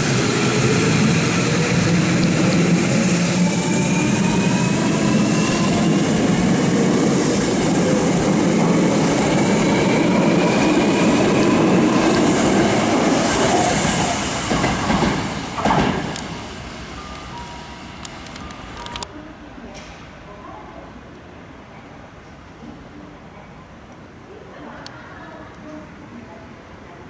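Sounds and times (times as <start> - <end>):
train wheels rumbling on rail: 0.0 - 19.1.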